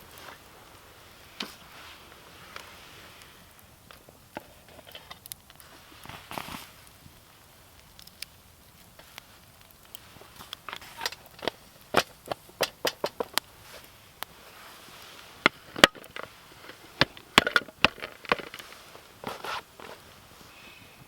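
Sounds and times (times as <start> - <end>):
wood knocking and snapping: 11.0 - 13.4.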